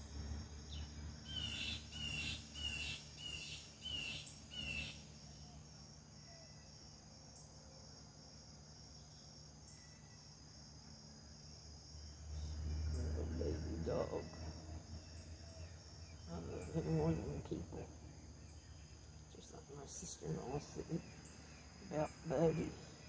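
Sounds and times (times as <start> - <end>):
high insect trill: 0.0 - 23.0
bird calling: 1.2 - 5.6.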